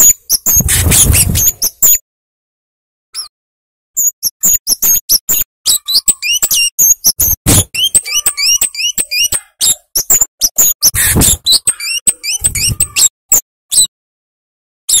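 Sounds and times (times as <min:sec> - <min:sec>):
bird calling sharp high chips: 0:04.0 - 0:13.1.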